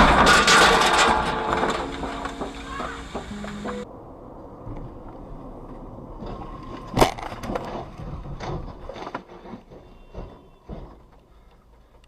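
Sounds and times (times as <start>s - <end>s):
car collision impact: 0.0s - 3.9s
crunching and clattering knocks: 0.0s - 3.9s, 5.7s - 12.0s.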